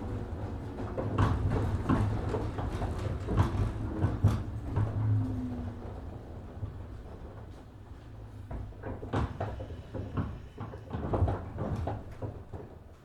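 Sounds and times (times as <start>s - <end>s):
train cabin low hum: 0.0s - 13.0s.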